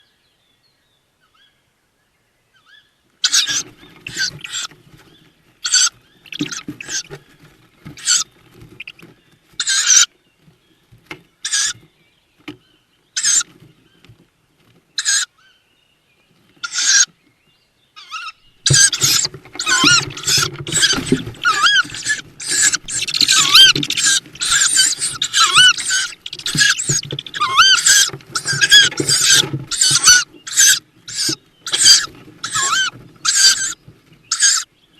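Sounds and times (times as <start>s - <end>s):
owl chicks hissing calls: 3.2s - 10.1s, 11.4s - 11.9s, 13.2s - 13.6s, 15.0s - 15.3s, 16.6s - 17.1s, 18.0s - 34.7s
chirping notes: 18.1s - 34.7s.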